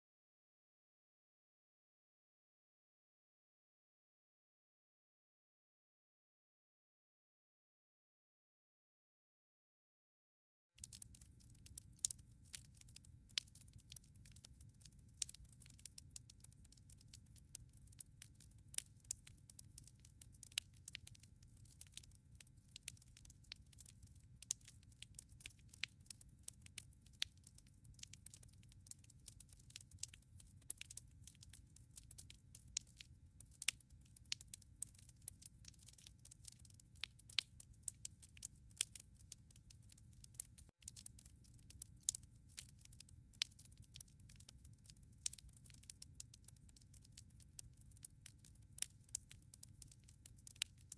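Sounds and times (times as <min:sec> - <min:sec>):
firewood crackling: 0:10.8 - 0:50.8.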